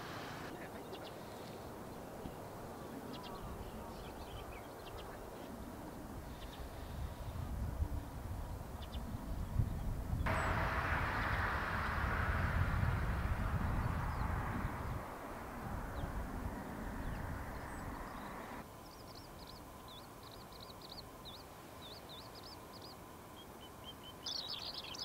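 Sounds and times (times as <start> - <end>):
rushing outdoor noise: 0.0 - 25.0
bird chirping: 10.3 - 25.0.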